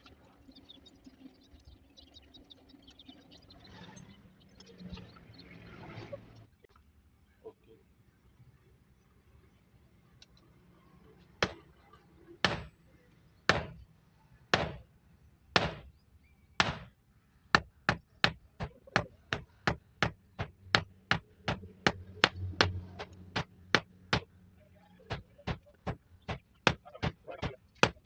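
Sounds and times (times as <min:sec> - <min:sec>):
hammer striking metal: 0:11.4 - 0:11.6, 0:12.4 - 0:13.9, 0:14.6 - 0:14.9, 0:15.6 - 0:16.0, 0:16.6 - 0:17.0, 0:17.6 - 0:24.3, 0:25.1 - 0:28.0.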